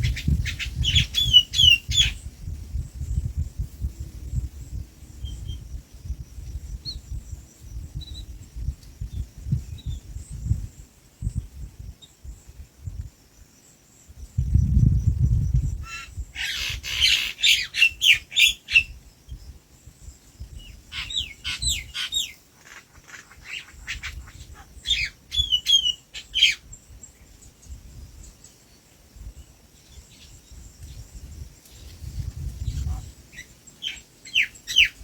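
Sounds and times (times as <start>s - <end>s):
bird chirping: 0.0s - 2.3s, 14.4s - 19.4s, 20.6s - 28.7s, 32.6s - 35.0s.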